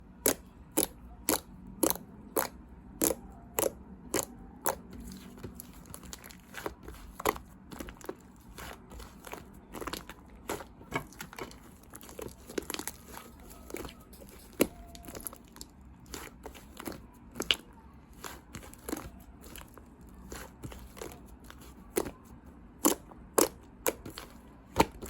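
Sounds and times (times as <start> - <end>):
slime crackling and popping: 0.3 - 17.6.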